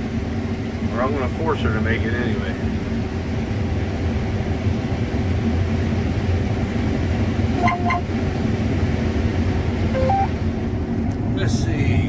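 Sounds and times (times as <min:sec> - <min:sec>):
combine harvester droning: 0:07.0 - 0:10.8
short electronic beeps: 0:07.6 - 0:08.1, 0:10.0 - 0:10.3.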